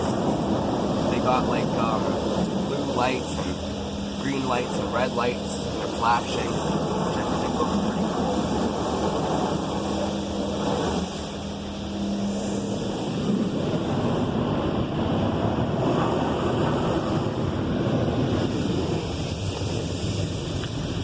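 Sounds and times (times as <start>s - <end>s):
low hum: 0.0s - 21.0s
water jets spraying a car: 0.0s - 21.0s.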